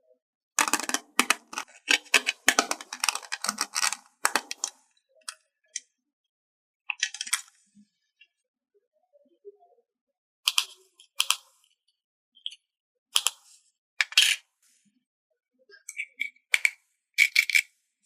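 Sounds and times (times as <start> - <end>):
plastic packaging crinkling: 0.6 - 4.7.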